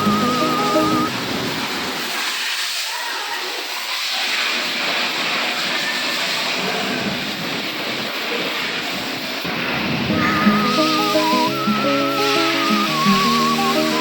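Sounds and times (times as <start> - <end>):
music with wavering tones: 0.0 - 1.1, 10.1 - 14.0
high pressure water spraying: 0.0 - 14.0.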